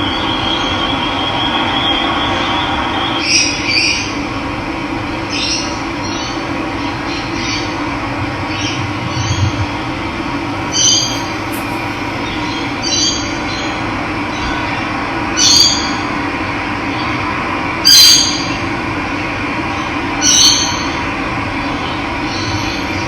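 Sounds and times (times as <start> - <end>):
loud bird call: 10.6 - 13.0.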